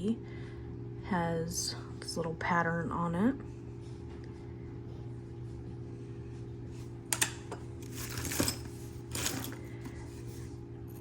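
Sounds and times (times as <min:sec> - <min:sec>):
steady low hum: 0:00.0 - 0:11.0
metal jewelry clinking: 0:07.9 - 0:09.7.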